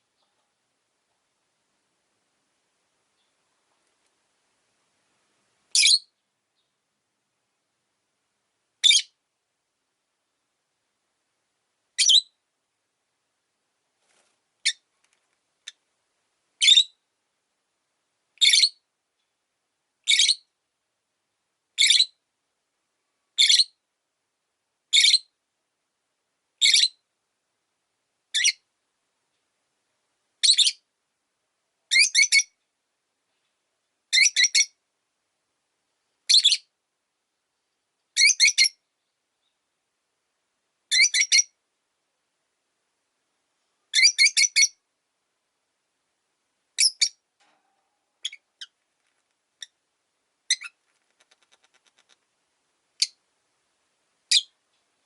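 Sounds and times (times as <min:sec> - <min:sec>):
parrot shrill calls: 0:43.9 - 0:44.8, 0:50.5 - 0:50.8.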